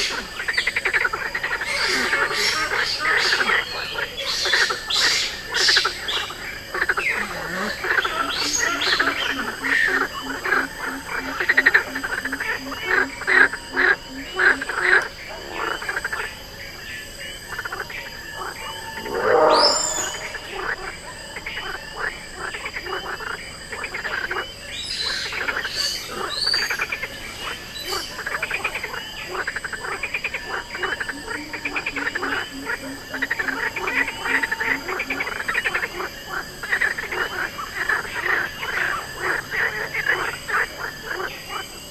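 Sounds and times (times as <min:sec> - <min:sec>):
frogs croaking: 0:00.0 - 0:41.9
call sweeping upward: 0:18.8 - 0:20.9
low pulsed trill: 0:18.9 - 0:21.0.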